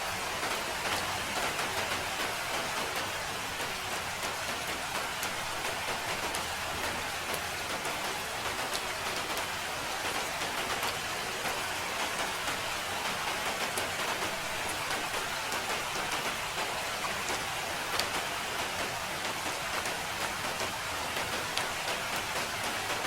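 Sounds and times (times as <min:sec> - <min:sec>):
steady rain hiss: 0:00.0 - 0:23.0
raindrop ticks: 0:00.1 - 0:23.0.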